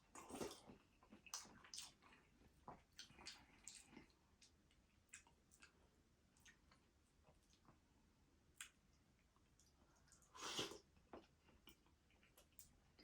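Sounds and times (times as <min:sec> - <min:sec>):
mouth clicks and chewing: 0:00.2 - 0:05.8, 0:08.6 - 0:09.0.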